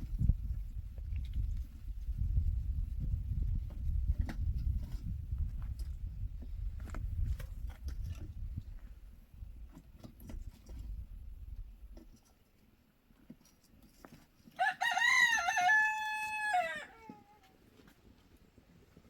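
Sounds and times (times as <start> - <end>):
rooster crowing: 14.6 - 17.4.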